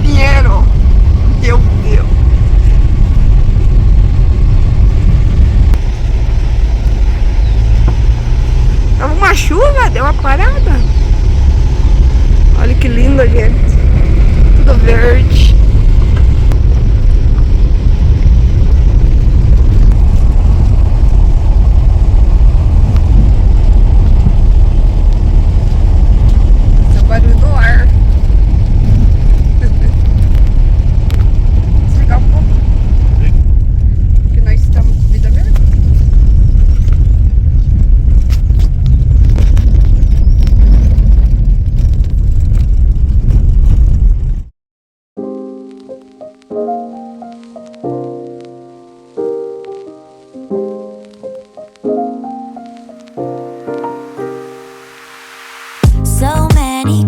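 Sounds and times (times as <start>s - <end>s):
air noise inside moving car: 0.0s - 44.4s
wind buffeting microphone: 0.0s - 44.5s.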